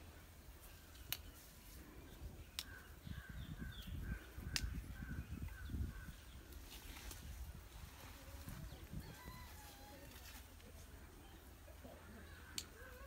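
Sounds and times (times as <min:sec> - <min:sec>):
sharp clicks: 0:00.9 - 0:01.3, 0:04.5 - 0:04.8.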